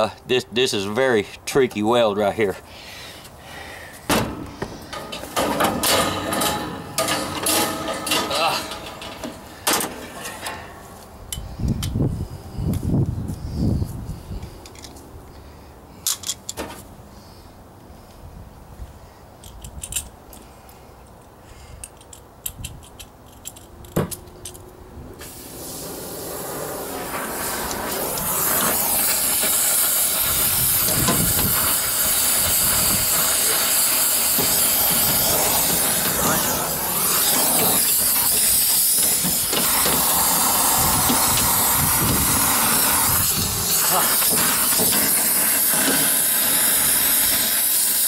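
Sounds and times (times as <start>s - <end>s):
torch flame hissing: 25.2s - 48.0s.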